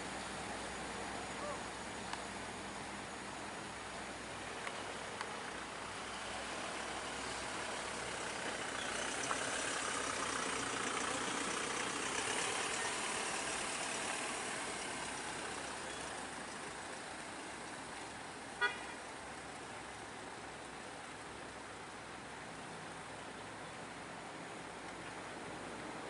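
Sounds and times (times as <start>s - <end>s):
motor vehicle passing: 5.5s - 17.0s.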